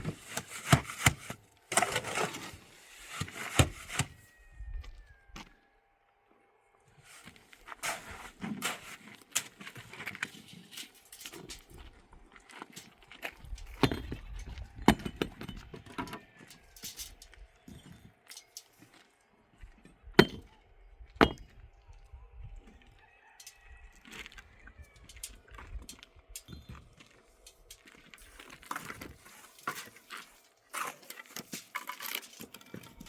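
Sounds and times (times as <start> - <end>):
hard objects clinking and knocking: 13.6 - 18.7, 20.2 - 20.5, 21.2 - 21.5.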